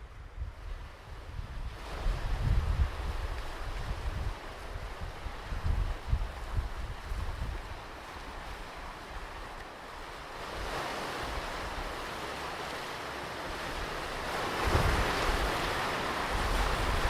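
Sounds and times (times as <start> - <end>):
wind buffeting microphone: 0.0 - 9.6, 13.5 - 17.0
ocean waves breaking on beach: 0.0 - 17.0.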